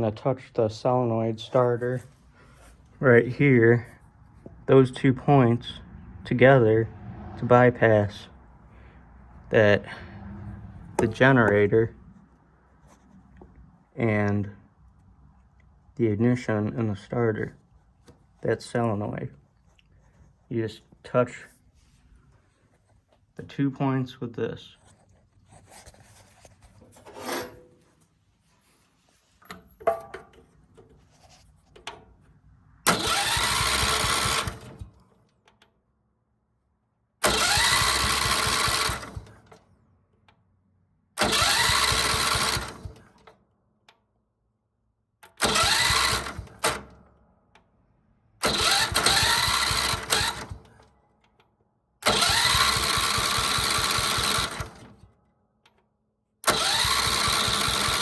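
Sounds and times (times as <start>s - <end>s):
starter motor cranking engine: 32.8s - 35.1s, 37.2s - 39.7s, 41.2s - 43.3s, 45.2s - 47.0s, 48.4s - 50.9s, 52.0s - 55.1s, 56.4s - 58.0s.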